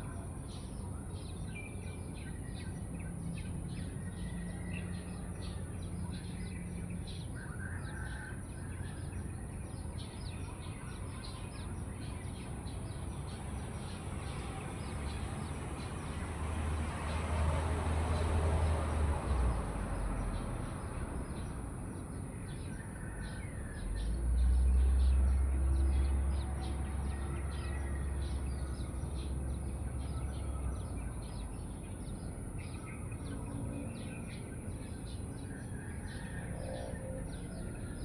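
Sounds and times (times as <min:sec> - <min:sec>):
birds chirping: 0:20.0 - 0:38.0.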